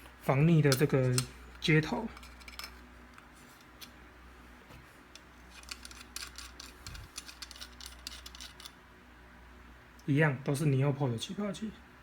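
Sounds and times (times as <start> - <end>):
small metal parts clinking: 2.0 - 2.8, 5.5 - 8.8.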